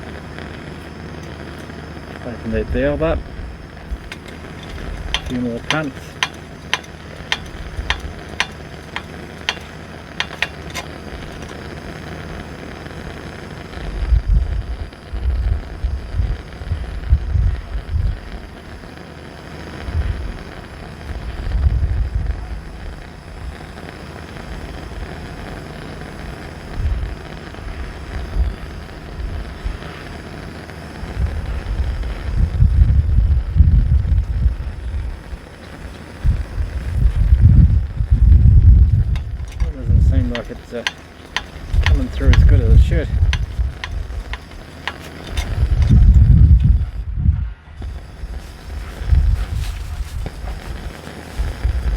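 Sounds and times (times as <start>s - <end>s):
lantern hissing: 0.0s - 14.0s, 34.3s - 47.1s, 47.8s - 51.9s
pump plunger clicking: 3.9s - 11.7s, 39.0s - 46.8s
wind on microphone: 13.8s - 18.4s, 21.1s - 23.6s, 31.0s - 51.9s.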